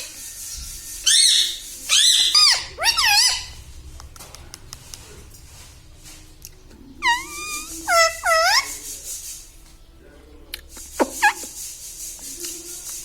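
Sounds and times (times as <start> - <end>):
parrot squeaky calls: 1.0 - 3.6, 7.0 - 9.0, 11.0 - 11.5.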